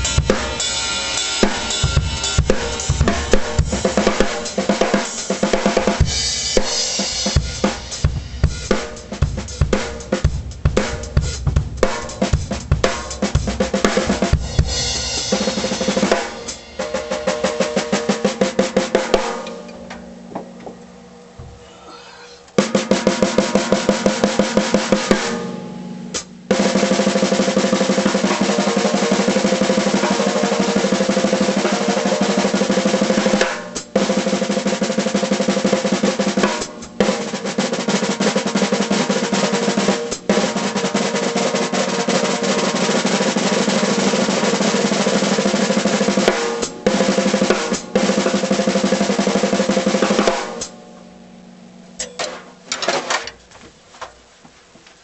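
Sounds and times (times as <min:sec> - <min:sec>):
snare drum strokes: 0:00.0 - 0:17.1
snare drum rolls: 0:01.4 - 0:19.6, 0:26.2 - 0:50.7.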